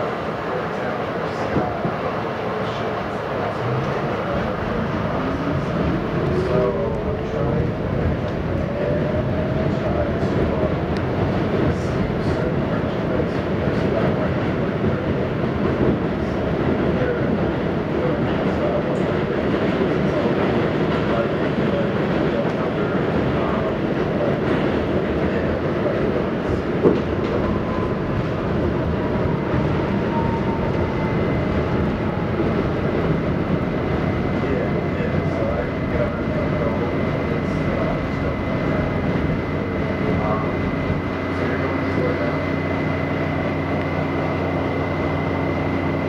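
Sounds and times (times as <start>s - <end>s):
subway wheels rumbling on rails: 0.0s - 46.0s.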